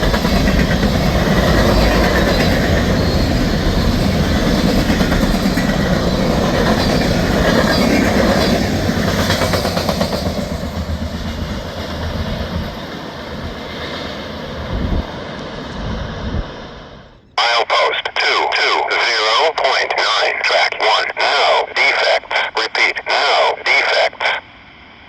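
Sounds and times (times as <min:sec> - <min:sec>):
freight train rumbling past: 0:00.0 - 0:17.3.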